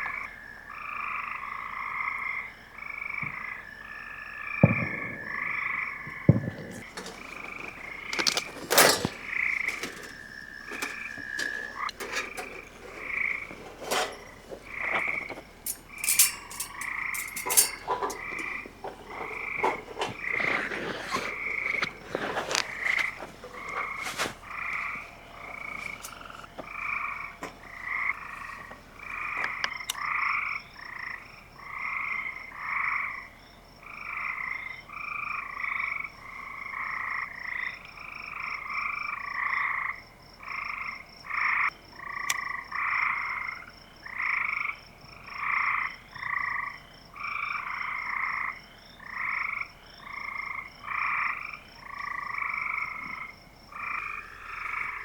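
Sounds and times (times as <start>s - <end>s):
frogs calling: 0.0s - 55.0s
wood fire popping and crackling: 4.7s - 30.0s.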